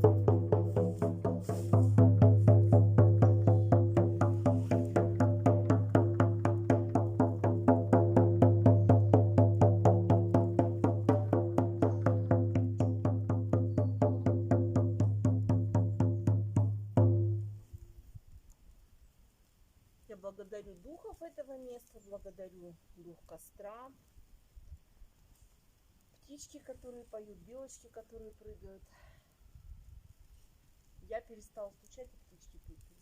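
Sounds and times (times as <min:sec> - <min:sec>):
hand drum beating: 0:00.0 - 0:17.6.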